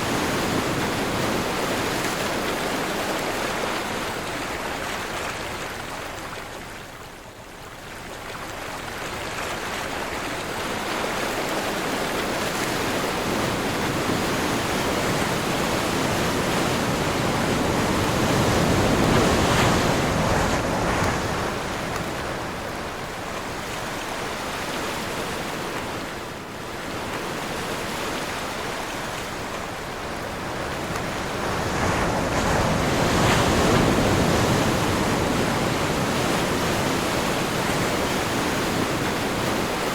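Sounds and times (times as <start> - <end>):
ocean surf washing in: 0.0 - 6.0, 9.8 - 39.9
wind blowing: 11.1 - 39.9.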